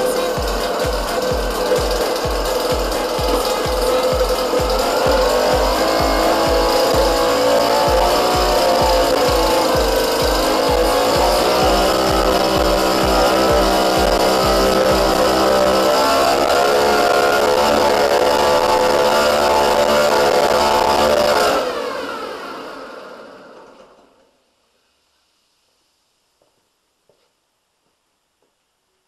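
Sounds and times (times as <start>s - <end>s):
outboard motor running: 0.0s - 22.2s.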